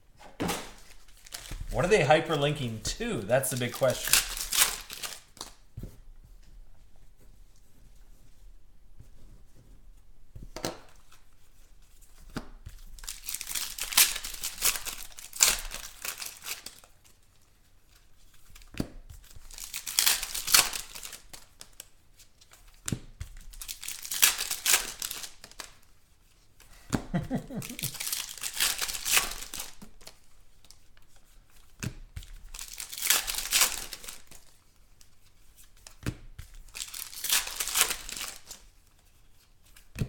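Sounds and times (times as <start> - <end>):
card pack wrappers tearing: 0.7 - 1.7, 2.4 - 5.5, 13.0 - 16.9, 19.5 - 21.6, 23.6 - 25.7, 27.4 - 30.1, 32.6 - 34.4, 36.7 - 38.6.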